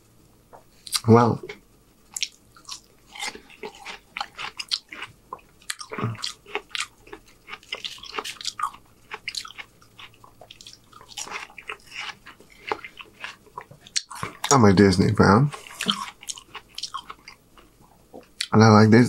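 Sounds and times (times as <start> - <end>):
man chewing with wet smacks: 0.5 - 14.6, 15.5 - 18.6.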